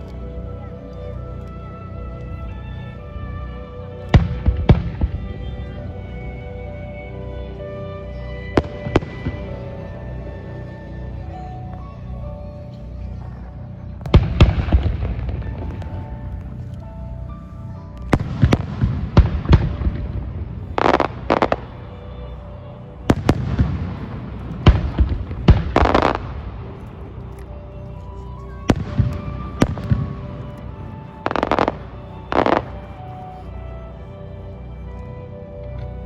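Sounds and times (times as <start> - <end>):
low rumble: 0.0 - 36.0.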